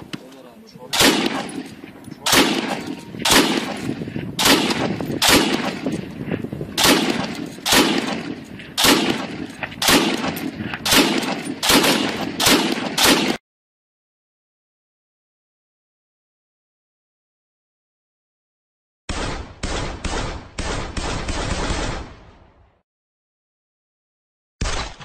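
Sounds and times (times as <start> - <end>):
echoing gunshots: 0.8 - 13.4, 19.1 - 22.8.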